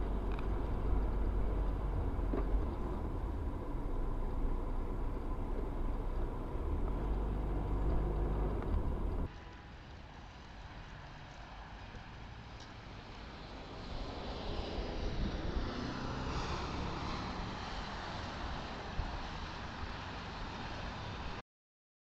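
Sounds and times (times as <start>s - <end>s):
heavy low rumble: 0.0s - 9.3s
car engine and road noise: 0.0s - 21.4s.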